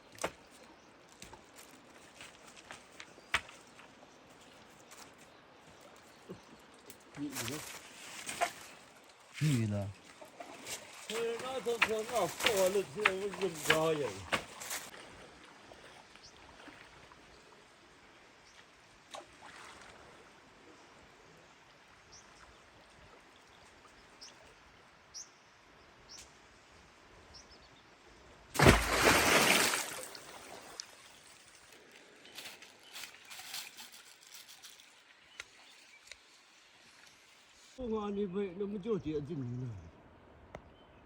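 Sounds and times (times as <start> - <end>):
running water: 1.2 - 24.9, 28.6 - 37.8.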